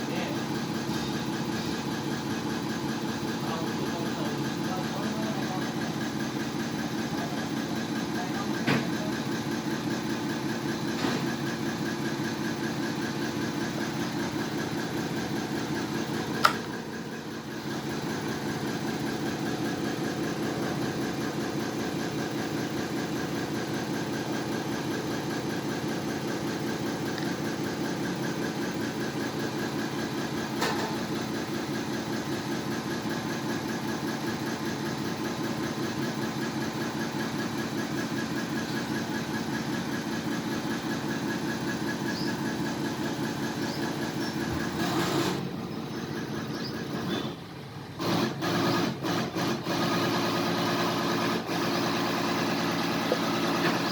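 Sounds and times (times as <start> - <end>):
hydraulic pump humming: 0.0 - 53.9
sharp mechanical click: 16.4 - 16.7
small mechanical knock: 16.4 - 16.7.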